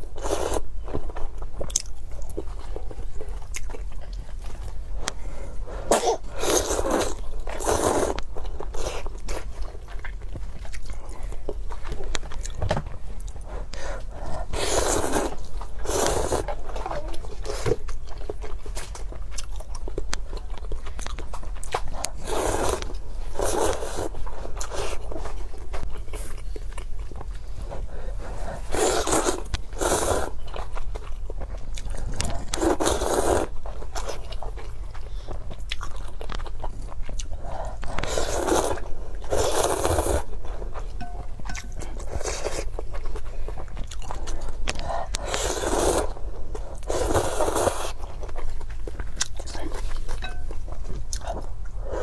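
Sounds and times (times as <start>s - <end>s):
chewing clicks: 17.6s - 25.0s, 28.8s - 33.4s, 40.8s - 46.1s.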